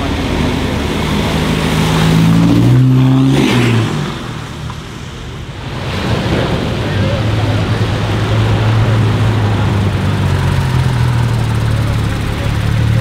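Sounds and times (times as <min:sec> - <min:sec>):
car accelerating hard: 0:00.0 - 0:04.6
sports car engine: 0:00.0 - 0:13.0.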